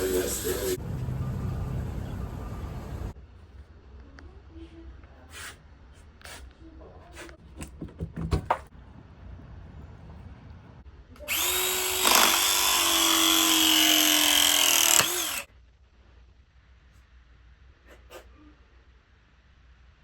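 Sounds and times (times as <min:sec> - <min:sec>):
electric power tool motor: 0:11.3 - 0:15.5.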